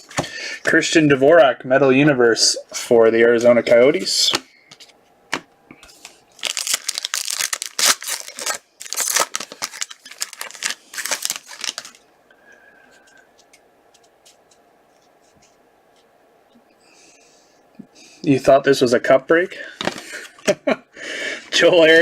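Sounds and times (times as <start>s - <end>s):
card pack wrappers tearing: 5.9s - 12.0s.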